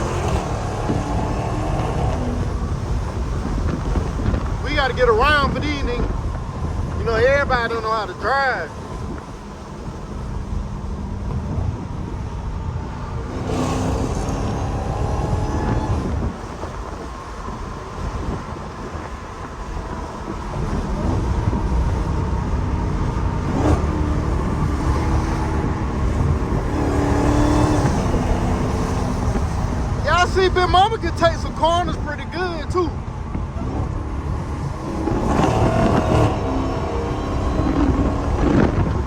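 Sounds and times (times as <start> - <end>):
car exhaust revving: 0.0 - 39.0.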